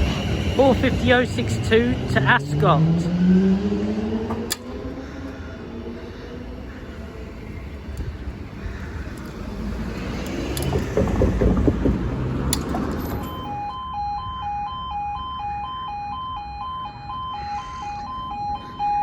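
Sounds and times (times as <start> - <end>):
vehicle driving past: 2.0 - 13.5
two-tone crossing warning alarm: 13.0 - 19.0.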